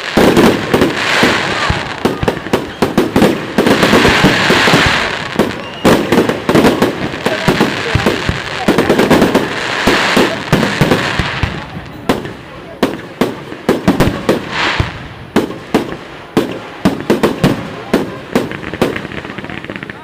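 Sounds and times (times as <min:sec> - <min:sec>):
crackling hiss of fireworks: 0:00.0 - 0:20.0.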